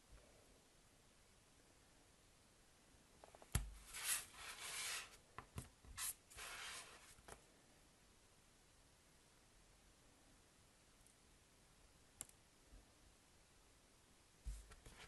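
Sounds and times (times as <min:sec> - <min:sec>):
rubbing and scraping packaging: 0:03.8 - 0:05.2, 0:06.0 - 0:07.2.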